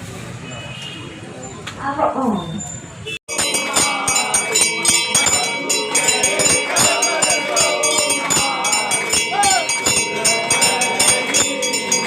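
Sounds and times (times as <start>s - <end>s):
metal bells ringing rapidly: 3.3s - 12.0s
people singing: 3.3s - 12.0s.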